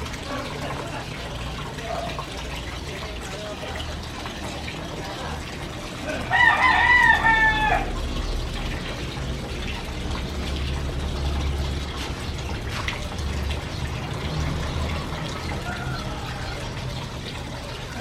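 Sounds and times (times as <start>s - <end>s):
rooster crowing: 6.1s - 8.0s, 15.6s - 16.7s.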